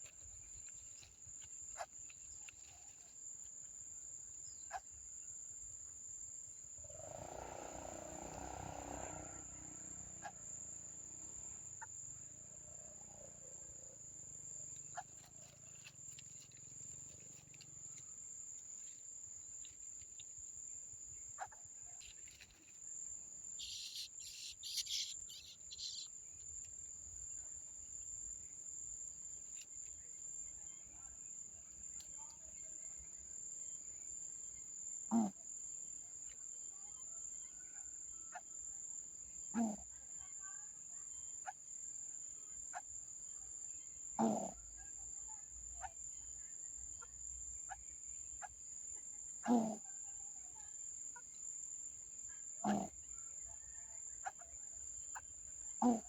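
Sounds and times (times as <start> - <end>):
insect high-pitched call: 0.0 - 3.2, 4.4 - 5.1, 6.8 - 13.5, 14.2 - 27.5, 36.2 - 56.0
high chirps: 23.6 - 26.1.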